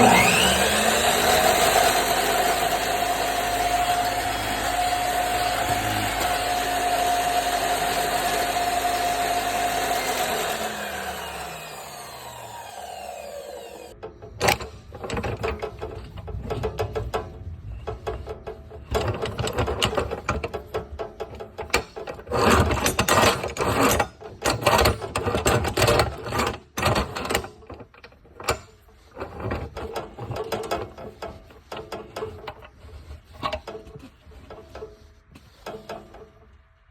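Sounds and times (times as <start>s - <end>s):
chop saw rattling: 0.0s - 36.8s.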